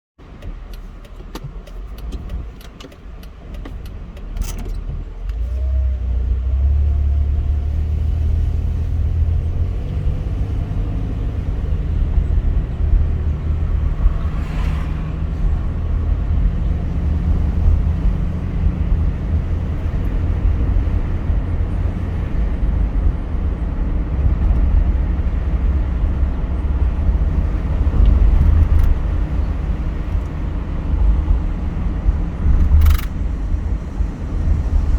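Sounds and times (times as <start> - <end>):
car engine and road rumble: 0.2 - 34.9
sharp clicks: 32.6 - 33.2.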